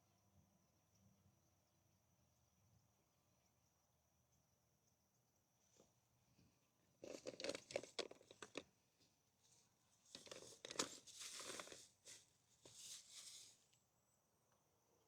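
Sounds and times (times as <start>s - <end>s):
crinkling and tearing: 7.0s - 8.6s, 10.1s - 13.6s.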